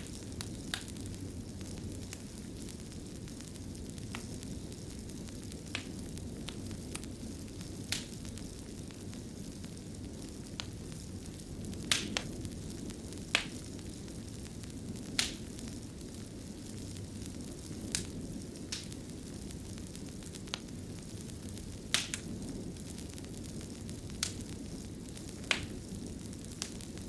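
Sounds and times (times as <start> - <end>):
fire crackles and pops: 0.0 - 27.0
low rumble of fire flames: 0.0 - 27.0.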